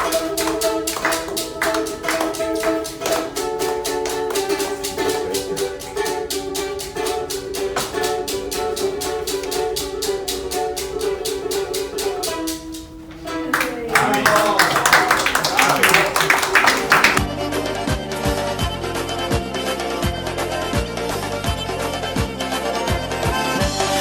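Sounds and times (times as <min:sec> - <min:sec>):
plucked string instrument strumming: 0:00.0 - 0:17.2.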